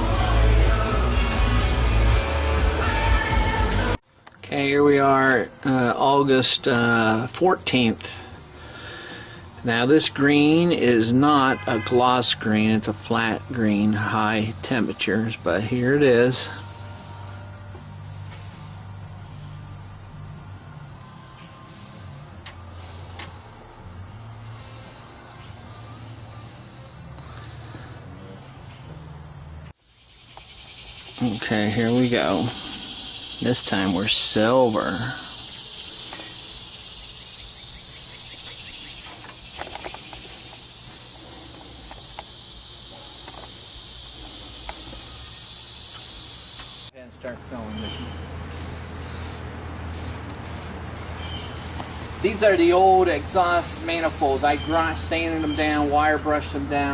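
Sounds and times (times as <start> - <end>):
crickets chirping: 0.0 - 56.9
spray can hissing: 48.5 - 52.5.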